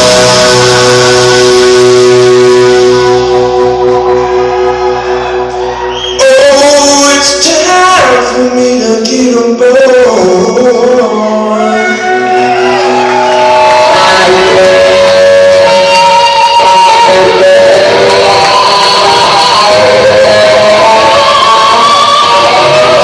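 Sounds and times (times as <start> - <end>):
electric guitar bending notes: 0.0 - 6.2, 11.5 - 23.0
live blues-rock band: 0.0 - 7.8, 11.9 - 23.0.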